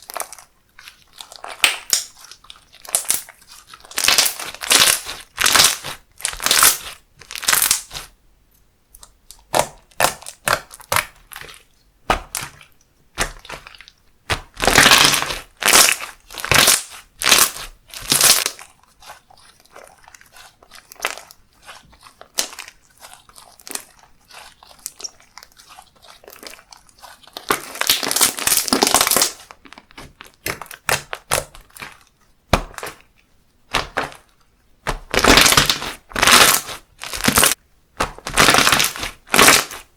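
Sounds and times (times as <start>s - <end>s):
slime crackling and popping: 0.0s - 8.1s, 9.0s - 33.1s, 33.7s - 39.9s.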